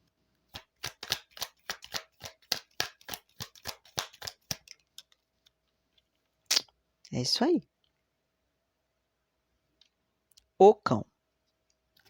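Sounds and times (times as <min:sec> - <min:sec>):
cards being shuffled by hand: 0:00.5 - 0:06.3.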